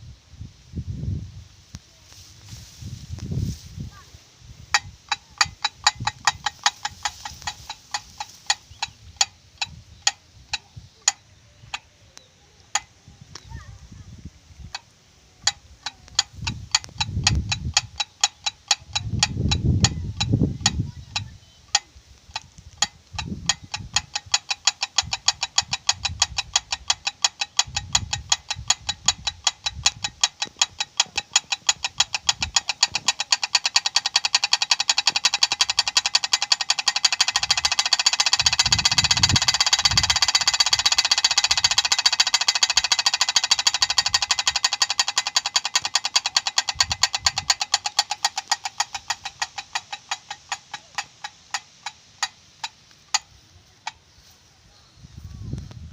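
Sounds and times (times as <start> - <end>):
wind rumbling on microphone: 0.0 - 18.0, 18.8 - 24.3, 24.9 - 33.2, 38.3 - 41.8, 46.6 - 47.8, 53.5 - 55.9
propeller bird scarer clacking: 4.6 - 13.7, 14.7 - 54.1.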